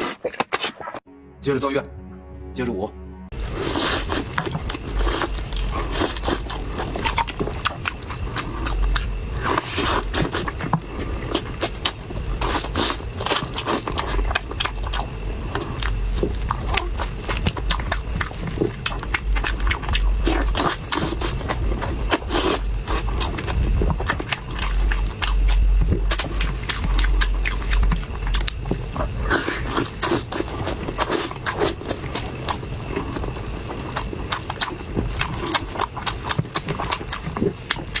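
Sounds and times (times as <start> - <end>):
crunching and chewing: 0.0 - 1.0, 3.3 - 38.0
low rumble: 1.1 - 12.4, 14.2 - 29.3.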